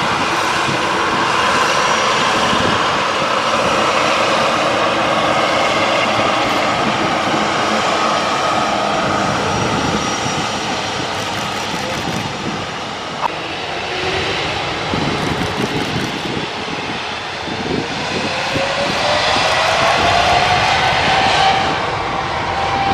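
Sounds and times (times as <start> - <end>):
jet engines running with turbine whine: 0.0 - 22.9
whine rising in pitch: 17.9 - 22.1.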